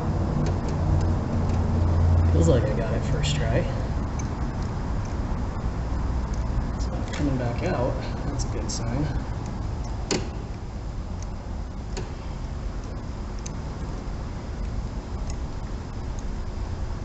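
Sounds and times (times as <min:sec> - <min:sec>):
low background rumble: 0:00.0 - 0:17.0
sharp metallic click: 0:04.0 - 0:05.2, 0:09.4 - 0:10.6, 0:12.8 - 0:15.5.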